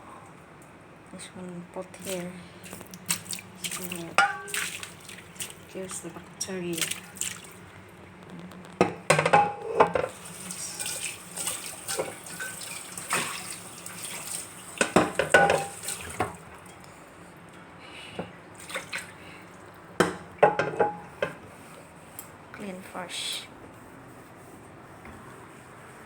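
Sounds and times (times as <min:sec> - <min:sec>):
water splashing in sink: 0:01.9 - 0:16.9, 0:18.6 - 0:21.1
pots and utensils clinking: 0:04.1 - 0:04.6, 0:08.8 - 0:13.5, 0:14.8 - 0:16.4, 0:20.0 - 0:21.4.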